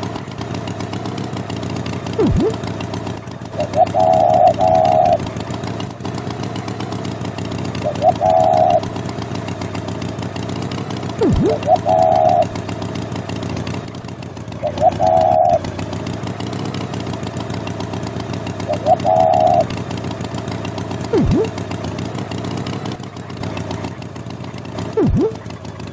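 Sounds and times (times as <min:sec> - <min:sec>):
engine-like drone: 0:00.0 - 0:25.9
quick dipping pitch swoops: 0:02.2 - 0:02.7, 0:11.2 - 0:12.6, 0:14.6 - 0:15.7, 0:18.7 - 0:19.7, 0:21.1 - 0:21.6, 0:25.0 - 0:25.4.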